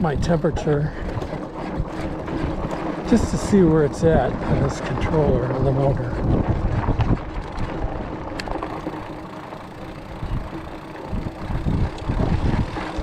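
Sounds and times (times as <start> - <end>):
wind and bumps on microphone: 0.0 - 9.0, 10.1 - 13.0
electric motor hum: 5.7 - 13.0.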